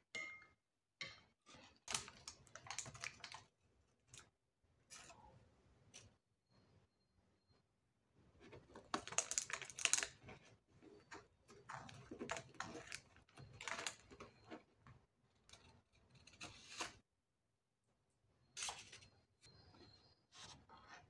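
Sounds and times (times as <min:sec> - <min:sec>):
baking paper crinkling: 0:01.7 - 0:03.5, 0:08.4 - 0:14.6.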